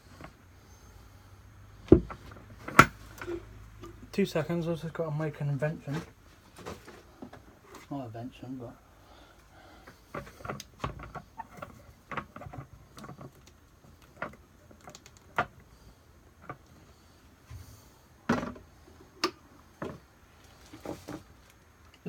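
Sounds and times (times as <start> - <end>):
objects handled on a workbench: 1.8 - 4.1, 9.8 - 21.8.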